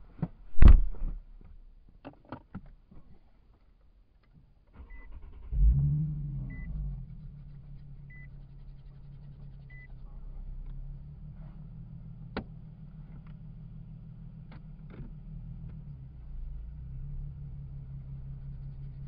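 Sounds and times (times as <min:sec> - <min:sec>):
car engine idling: 0:04.8 - 0:19.0.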